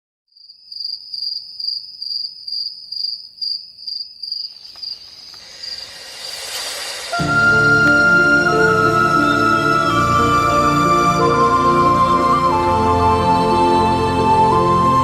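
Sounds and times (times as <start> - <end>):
cricket chirping: 0.3 - 7.2
whoosh: 5.3 - 10.1.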